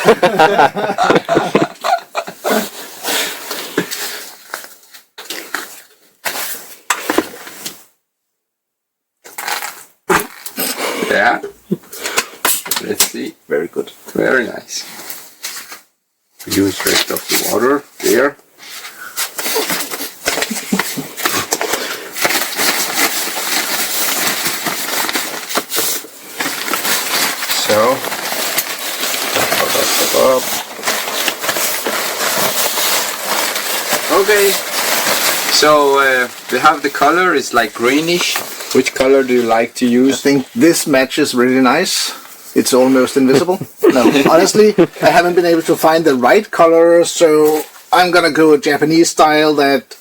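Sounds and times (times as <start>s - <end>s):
person speaking: 0.0s - 2.7s, 27.5s - 28.2s, 29.2s - 30.7s, 34.0s - 34.7s, 35.5s - 50.0s
nylon fabric rustling: 16.8s - 38.8s.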